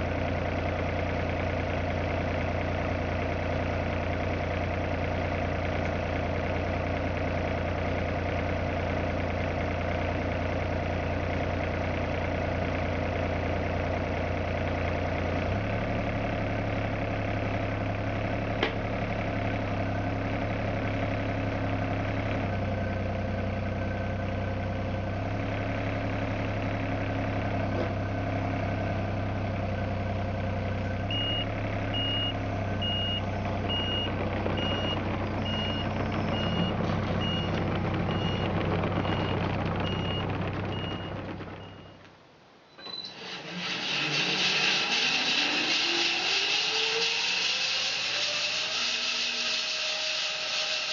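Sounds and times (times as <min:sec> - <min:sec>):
engine idling: 0:00.0 - 0:42.6
reversing alarm beeping: 0:31.1 - 0:42.0.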